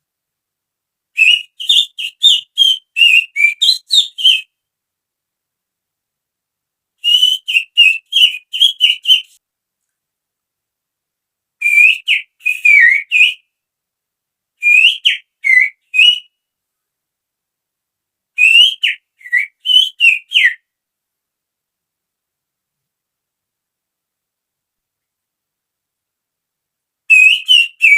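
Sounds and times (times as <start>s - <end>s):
person whistling bird call: 1.2s - 4.4s, 7.0s - 9.3s, 11.6s - 13.4s, 27.1s - 27.9s.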